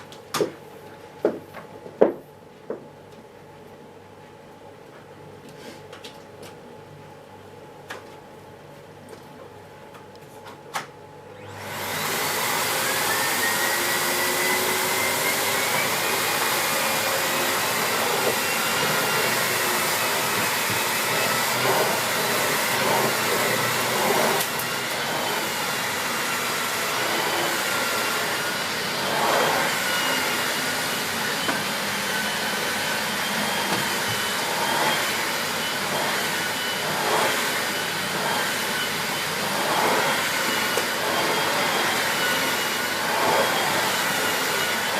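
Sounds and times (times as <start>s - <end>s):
vacuum cleaner motor whining: 11.4s - 44.9s.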